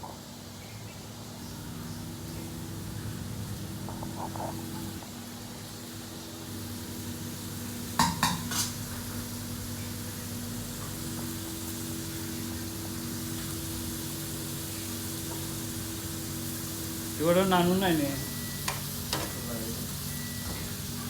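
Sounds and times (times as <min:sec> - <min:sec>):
machinery hum: 0:00.2 - 0:08.0, 0:08.8 - 0:21.0
metal cookware clanking: 0:08.0 - 0:08.8.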